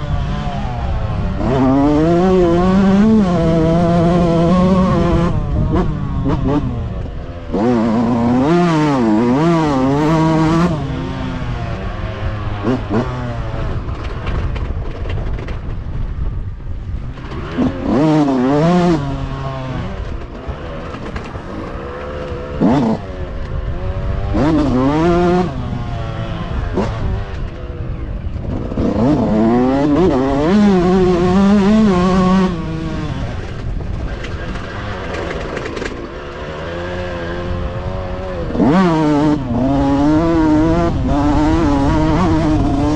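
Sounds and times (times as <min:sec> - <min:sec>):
motocross bikes revving: 0:00.0 - 0:15.5, 0:17.0 - 0:42.9.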